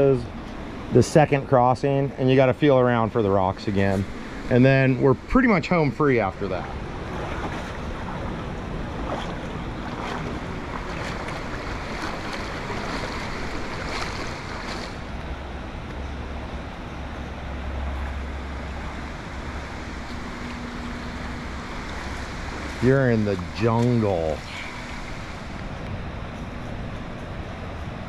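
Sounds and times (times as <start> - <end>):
river water rushing: 4.0 - 27.7
people wading splashes: 5.4 - 15.2, 17.9 - 25.8
wind rumble on microphone: 6.2 - 28.0.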